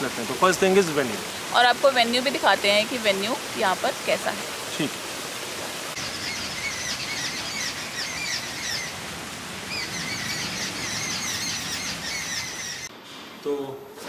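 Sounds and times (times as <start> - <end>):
steady background hiss: 0.0 - 14.0
birds chirping: 5.9 - 12.9.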